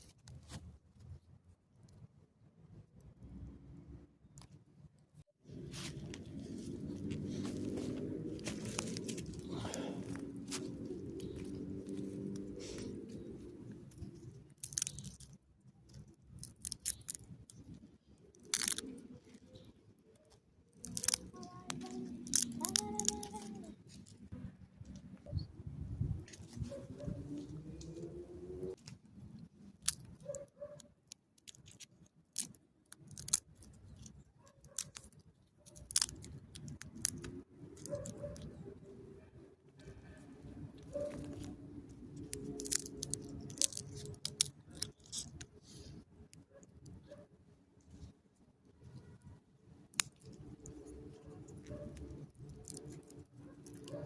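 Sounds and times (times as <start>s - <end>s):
distant road traffic: 5.4s - 31.8s, 33.1s - 54.0s
nuts being crunched and chewed: 5.5s - 25.0s, 26.3s - 38.6s, 39.8s - 47.0s, 49.8s - 54.0s.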